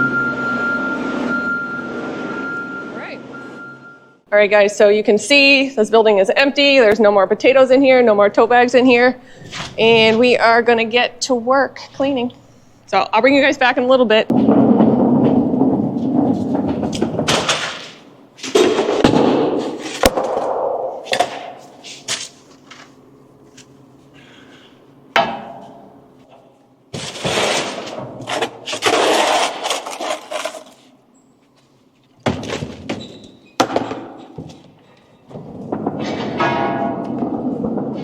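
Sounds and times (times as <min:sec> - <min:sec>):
bangs and clatters: 0:14.3 - 0:21.8, 0:35.3 - 0:38.0
scraping noises: 0:21.6 - 0:22.9.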